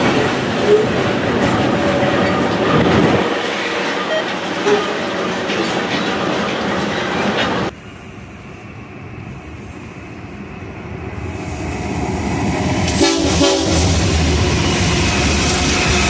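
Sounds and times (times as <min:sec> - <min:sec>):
train rumbling: 0:00.0 - 0:16.0
train horn blast: 0:00.6 - 0:05.0, 0:12.9 - 0:14.8.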